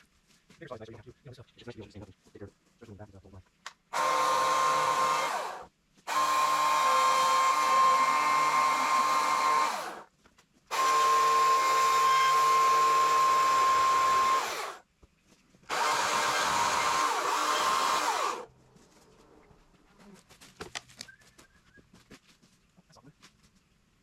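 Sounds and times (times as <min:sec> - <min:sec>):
battery chainsaw whining: 0:03.9 - 0:10.1, 0:10.7 - 0:14.8, 0:15.7 - 0:18.5.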